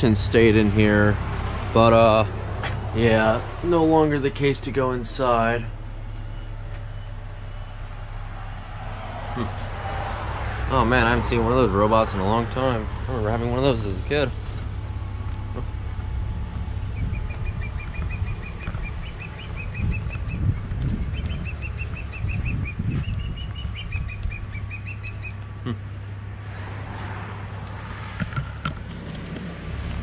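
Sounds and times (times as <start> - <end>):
songbird chirping: 0.0 - 28.6
wind rumble on microphone: 12.8 - 25.3.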